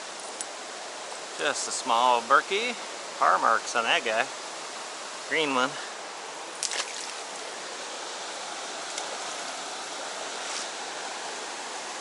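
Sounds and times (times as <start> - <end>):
creek water running: 0.0 - 12.0
faint light ticks: 0.2 - 0.5.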